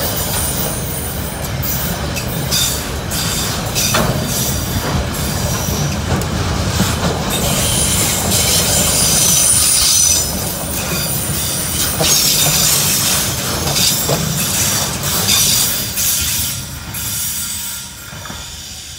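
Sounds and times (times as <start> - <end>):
train wheels rumbling on rail: 0.0 - 18.9
high wheel squeal: 7.3 - 18.9.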